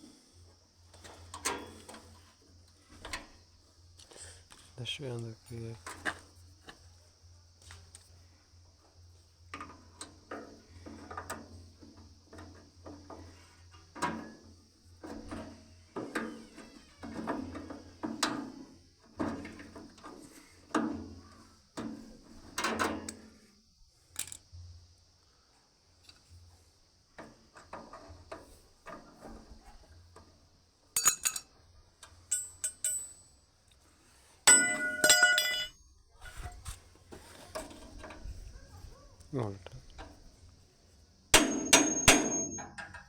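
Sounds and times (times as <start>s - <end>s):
metal tools knocking and clinking: 31.0s - 31.5s, 32.3s - 33.4s, 34.5s - 35.8s, 41.4s - 43.0s
ringing metal clangs: 31.0s - 31.5s, 32.3s - 33.4s, 34.5s - 35.9s, 41.4s - 43.0s.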